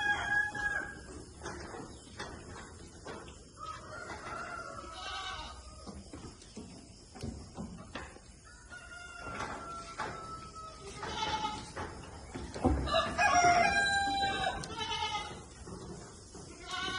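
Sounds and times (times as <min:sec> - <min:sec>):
rooster crowing: 0:00.0 - 0:01.1, 0:03.6 - 0:05.5, 0:08.4 - 0:10.9, 0:12.8 - 0:14.7.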